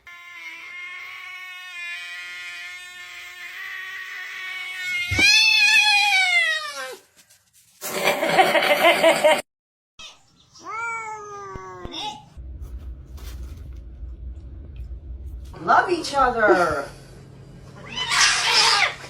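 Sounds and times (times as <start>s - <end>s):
cat yowling: 0.0s - 7.0s, 10.6s - 12.2s, 17.8s - 19.0s.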